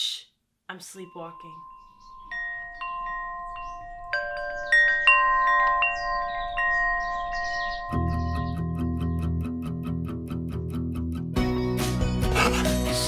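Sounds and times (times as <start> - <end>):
wind chimes ringing: 0.9 - 8.6.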